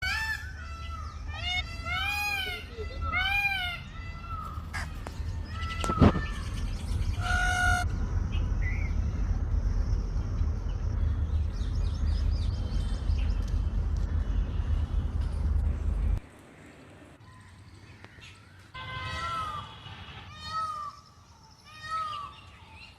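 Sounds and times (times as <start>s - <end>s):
peafowl calling: 0.0s - 7.9s, 18.7s - 21.0s
steady low rumble: 0.4s - 17.2s
small birds chirping: 0.5s - 18.7s.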